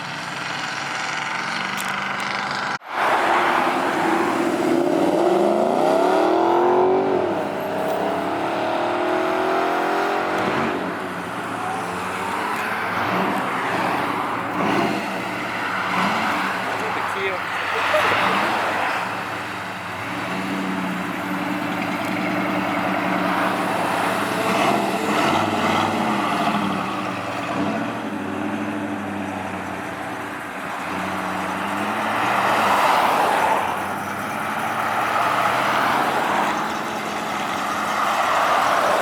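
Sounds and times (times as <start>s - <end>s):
cars driving past: 0.0s - 39.0s.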